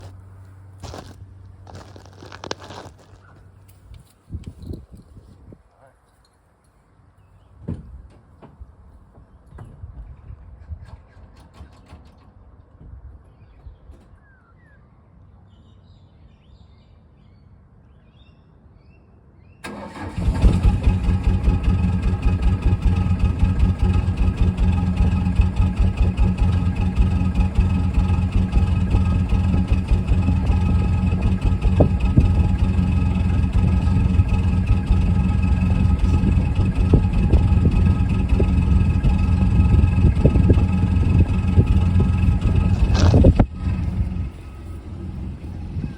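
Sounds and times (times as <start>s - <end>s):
diesel engine cranking and idling: 0.0s - 3.7s, 19.6s - 45.9s.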